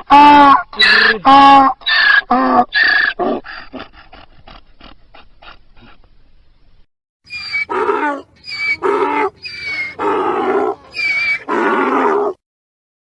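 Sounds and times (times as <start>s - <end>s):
donkey braying: 7.3s - 12.4s.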